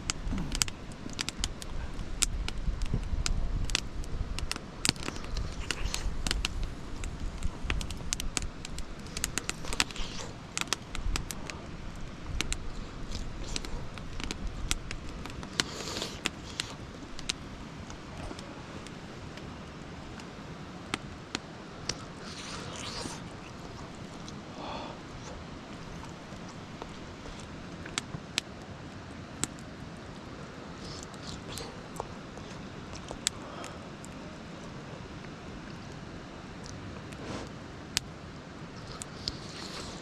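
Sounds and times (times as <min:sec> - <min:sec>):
wind rumble on microphone: 0:00.0 - 0:15.6
sharp crackles and clicks: 0:00.0 - 0:28.7.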